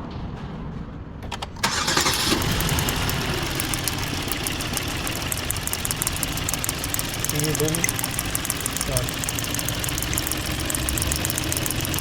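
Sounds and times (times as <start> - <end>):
engine cranking clicks: 1.2 - 12.0
engine idling with uneven ticking: 1.6 - 12.0.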